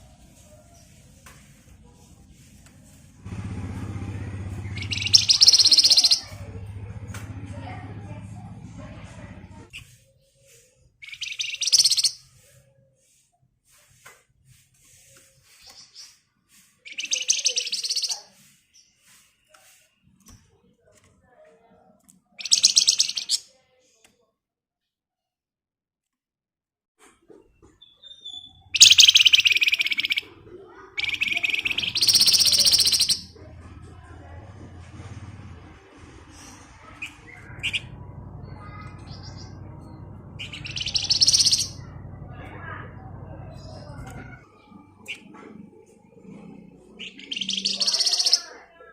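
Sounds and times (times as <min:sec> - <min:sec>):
songbird rattling trills: 0:03.8 - 0:06.4, 0:11.0 - 0:12.2, 0:16.8 - 0:18.2, 0:22.4 - 0:23.4, 0:28.0 - 0:30.2, 0:31.0 - 0:33.4, 0:36.3 - 0:42.1, 0:47.0 - 0:48.5.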